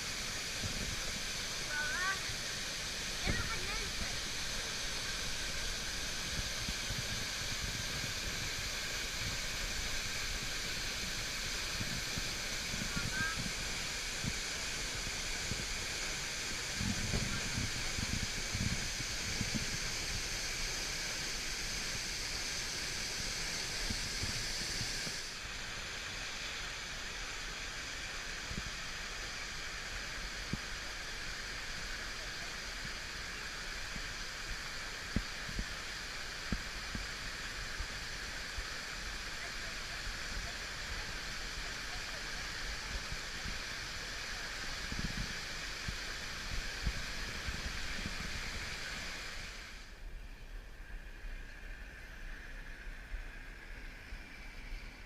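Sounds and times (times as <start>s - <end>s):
steady rushing noise: 0.0s - 55.0s.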